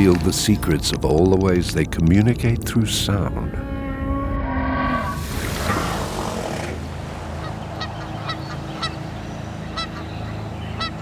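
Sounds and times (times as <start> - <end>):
geese honking: 6.8 - 11.0.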